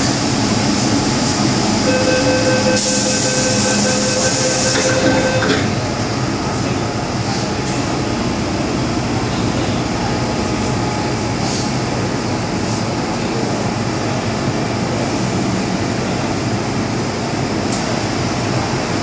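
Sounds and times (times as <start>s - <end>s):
train rumble: 0.0s - 19.0s
door closing warning tone: 1.8s - 5.8s
train doors hissing: 2.5s - 5.8s, 11.3s - 11.9s.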